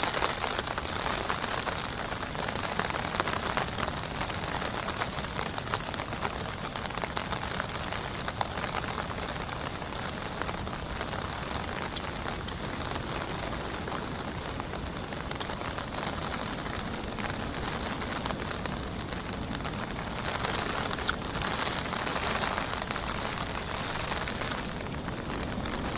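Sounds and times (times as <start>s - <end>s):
heavy rain falling: 0.0s - 25.9s
raindrops ticking on a surface: 0.0s - 25.9s.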